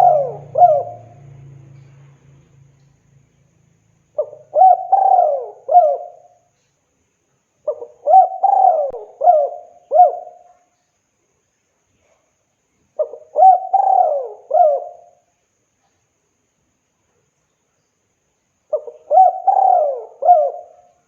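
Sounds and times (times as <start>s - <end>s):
dove cooing: 0.0s - 1.4s, 4.2s - 6.4s, 7.6s - 10.5s, 13.0s - 15.2s, 18.7s - 21.0s.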